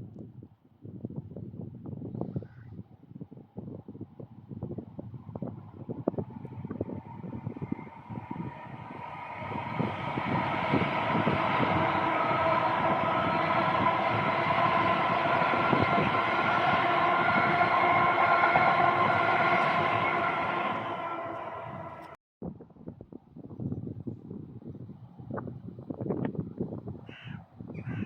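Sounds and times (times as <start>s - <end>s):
train whine: 4.1s - 22.2s
train passing close by: 4.2s - 22.2s.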